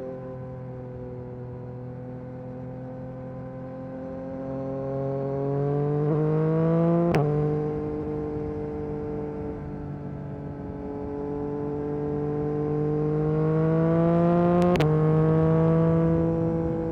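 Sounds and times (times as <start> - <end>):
motorcycle engine accelerating: 1.8 - 16.9.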